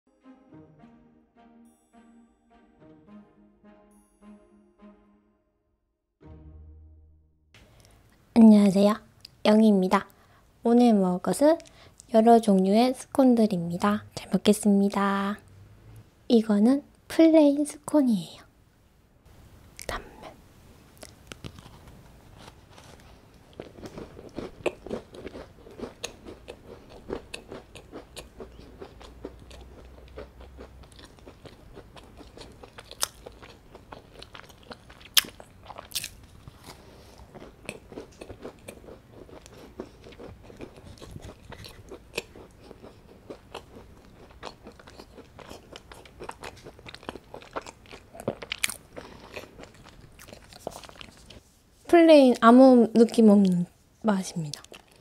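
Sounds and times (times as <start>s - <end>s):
chewing crumbly scone: 21.0s - 51.4s, 54.6s - 55.0s.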